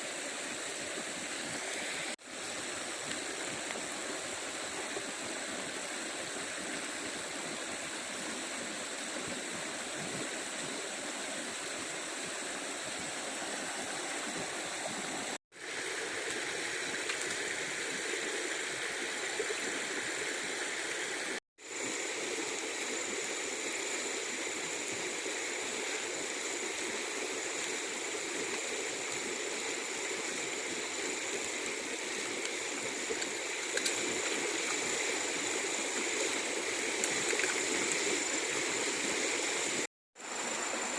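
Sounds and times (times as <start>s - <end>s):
stream water running: 0.0s - 40.9s.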